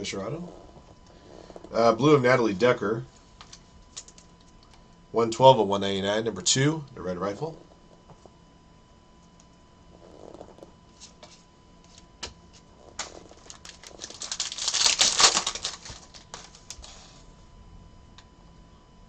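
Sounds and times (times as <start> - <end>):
foil wrappers crinkling: 12.9 - 17.2.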